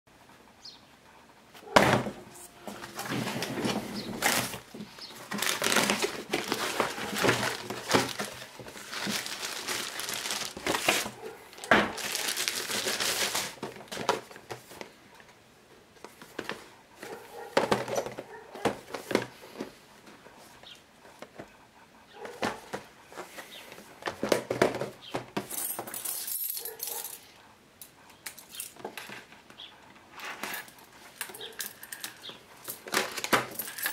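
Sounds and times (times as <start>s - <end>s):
cardboard packaging crinkling: 2.4s - 14.9s, 31.3s - 33.9s.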